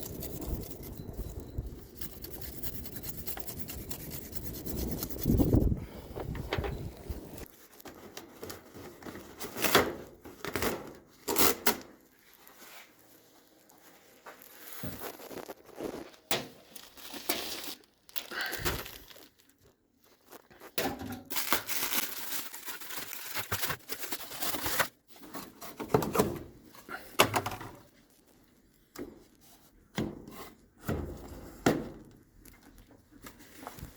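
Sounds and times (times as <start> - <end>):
metal brush scrubbing part: 0.0 - 5.8.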